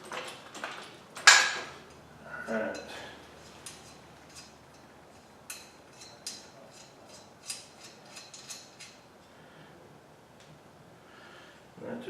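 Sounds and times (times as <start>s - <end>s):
metal parts clicking and clinking: 3.4s - 9.0s.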